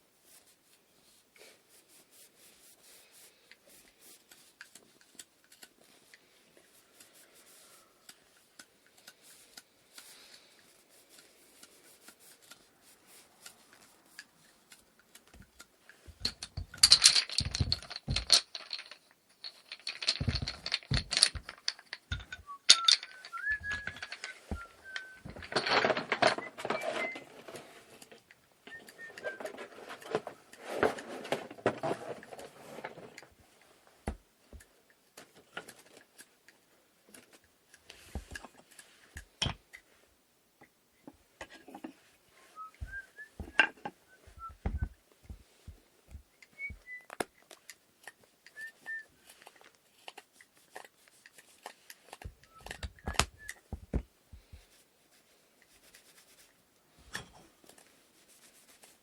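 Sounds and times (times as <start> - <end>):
wood rubbing: 8.9 - 33.2, 41.4 - 47.3, 48.5 - 56.6
wood knocking on wood: 44.4 - 46.8.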